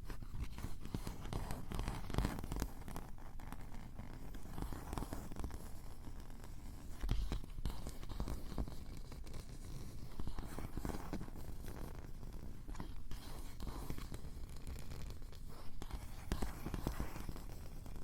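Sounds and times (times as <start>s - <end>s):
fingers scratching on microphone: 0.0s - 18.0s.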